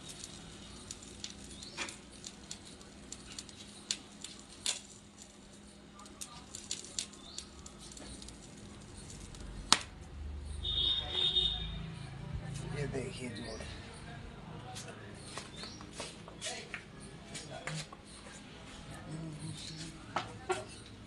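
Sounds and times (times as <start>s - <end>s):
welding arc hum and hiss: 0.0s - 11.6s
welding arc crackles: 0.0s - 11.7s.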